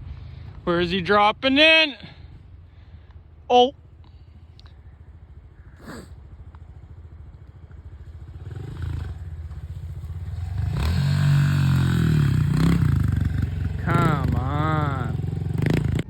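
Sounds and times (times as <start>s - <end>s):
small motorbike engine revving: 8.1s - 16.0s.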